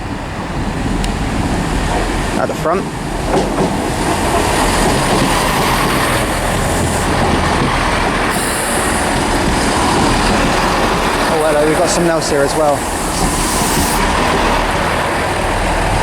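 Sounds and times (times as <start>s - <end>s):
diesel train engines running: 0.0s - 16.0s
train wheels rolling on rails: 0.0s - 16.0s
high wheel squeal: 8.0s - 14.8s.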